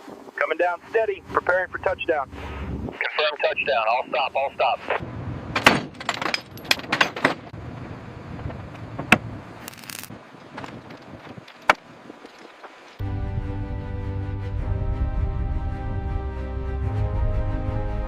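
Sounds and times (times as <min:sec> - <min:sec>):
metallic clanks and clinks: 0:05.9 - 0:07.5
background music: 0:13.0 - 0:18.0.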